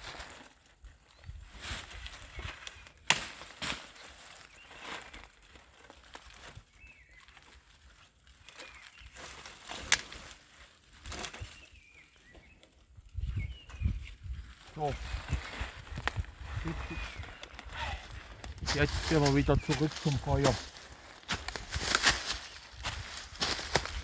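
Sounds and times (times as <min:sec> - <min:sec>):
forest litter rustling: 0:00.0 - 0:24.0
dry twigs cracking: 0:01.8 - 0:13.2, 0:14.5 - 0:24.0
birds chirping faintly: 0:11.2 - 0:24.0.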